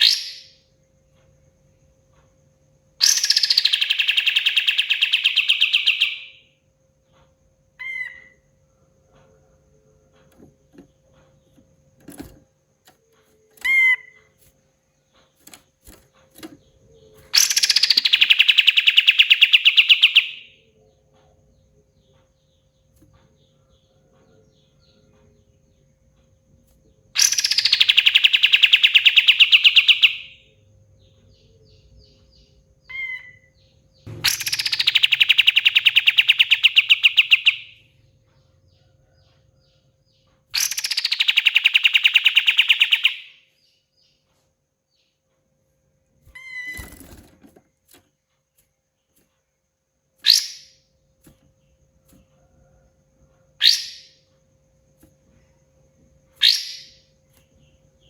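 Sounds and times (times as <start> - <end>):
songbird rattling trills: 3.0 - 6.4, 10.3 - 20.5, 27.2 - 30.4, 33.0 - 37.9, 40.5 - 43.4
bird short chirps: 34.1 - 37.8, 56.4 - 57.0.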